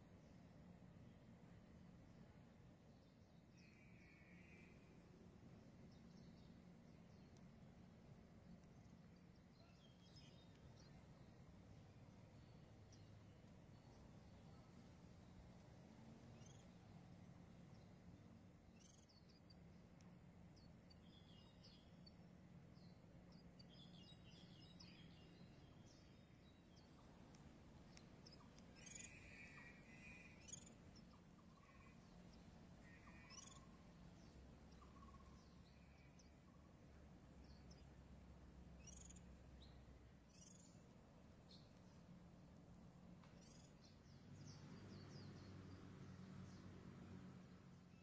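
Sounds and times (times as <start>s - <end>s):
steady low hum: 0.0s - 48.0s
faint high bird chirps: 2.8s - 5.1s, 8.6s - 42.1s, 43.2s - 45.8s.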